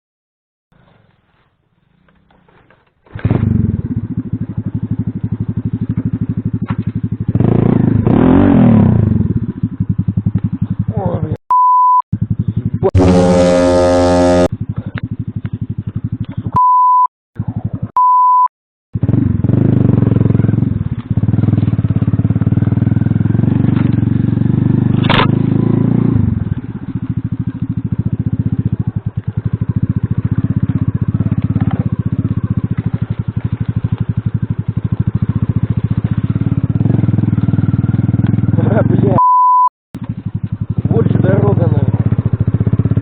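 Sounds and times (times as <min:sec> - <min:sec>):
moped engine revving: 0:03.1 - 0:11.2, 0:12.2 - 0:16.3, 0:19.0 - 0:39.2, 0:40.0 - 0:43.0
short beep tones: 0:11.5 - 0:12.0, 0:16.6 - 0:17.1, 0:18.0 - 0:18.5, 0:39.2 - 0:39.7.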